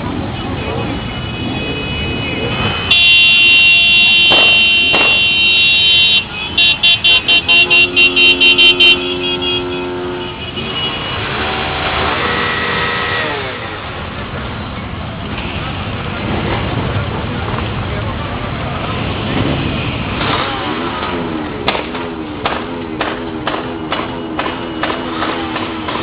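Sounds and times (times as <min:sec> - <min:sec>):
road engines running: 0:00.0 - 0:26.0
vehicle horn blasts and honks: 0:02.7 - 0:13.8
low held horn: 0:07.4 - 0:13.8.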